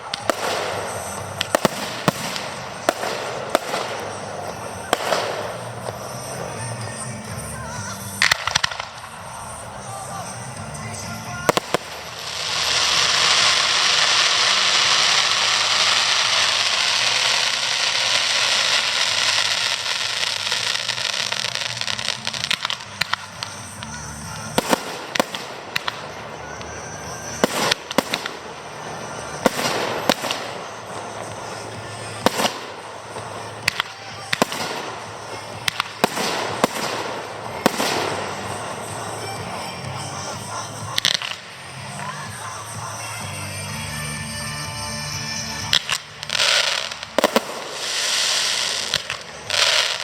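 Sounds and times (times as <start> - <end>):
fireworks hissing crackle: 0.0 - 50.0
fireworks shells bursting: 0.0 - 50.0
music: 0.0 - 50.0.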